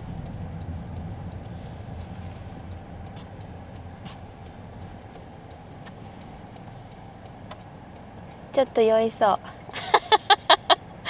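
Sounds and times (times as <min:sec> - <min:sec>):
faint ticks: 0:00.0 - 0:08.5
car interior road rumble: 0:00.0 - 0:11.0.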